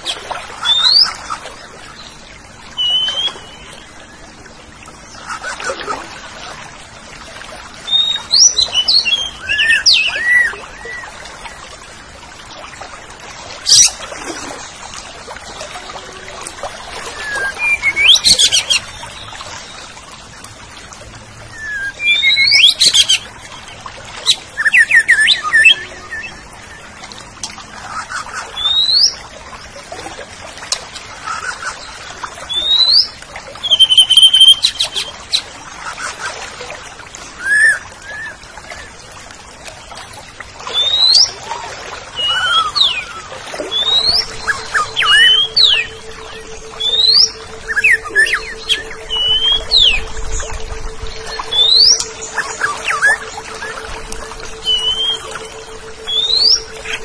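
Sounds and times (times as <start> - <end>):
bird singing whistled notes: 2.8 - 3.9, 7.9 - 11.1, 17.1 - 19.0, 21.5 - 23.2, 24.6 - 26.8, 32.5 - 35.1, 42.2 - 57.0.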